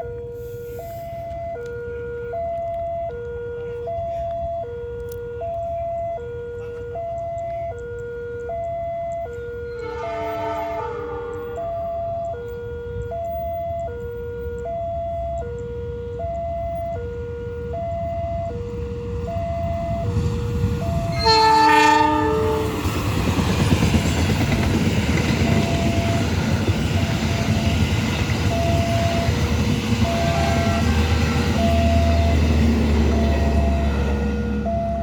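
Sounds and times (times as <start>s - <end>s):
two-tone electronic alarm: 0.0s - 35.0s
locomotive air horn: 9.4s - 13.2s, 19.8s - 23.6s, 25.2s - 35.0s
train wheels rumbling on rail: 17.6s - 35.0s.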